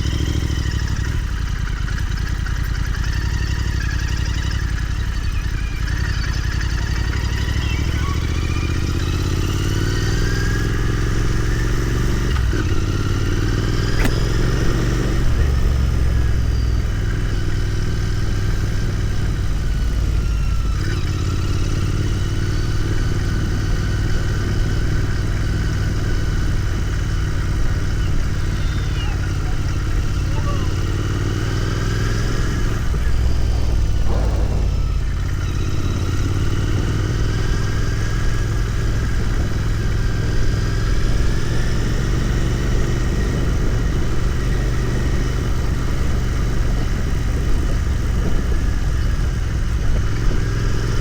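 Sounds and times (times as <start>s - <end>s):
motorcycle engine running: 0.0s - 51.0s
sharp click: 13.8s - 14.6s.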